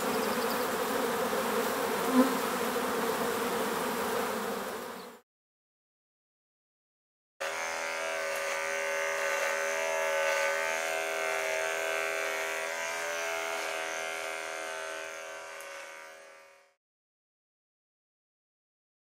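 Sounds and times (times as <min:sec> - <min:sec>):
small electric motor buzzing: 0:07.4 - 0:16.8.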